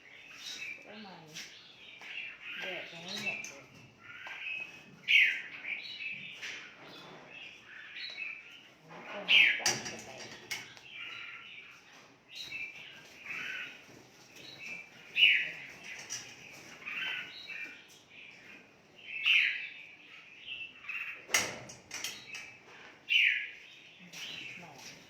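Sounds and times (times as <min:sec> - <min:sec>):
birds chirping and calling: 0:00.0 - 0:25.0.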